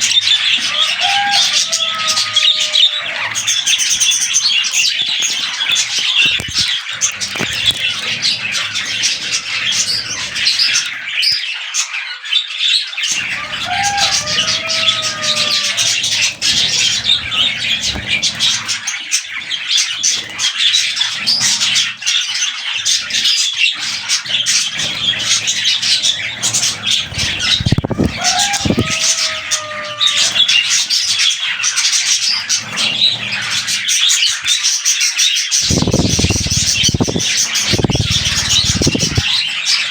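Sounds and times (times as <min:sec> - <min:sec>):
budgerigars chattering: 0:00.0 - 0:39.9
low whistled bird calls: 0:35.6 - 0:39.4.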